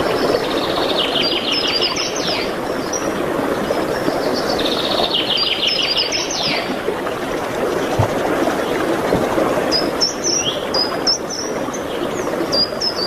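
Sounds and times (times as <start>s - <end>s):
songbird singing: 4.3s - 6.8s, 7.7s - 13.0s.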